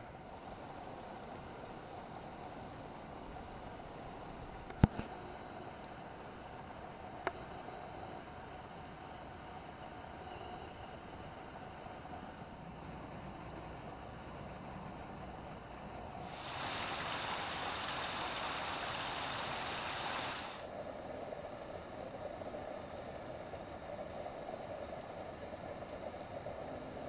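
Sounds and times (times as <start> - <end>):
creek water rushing: 16.2 - 20.7.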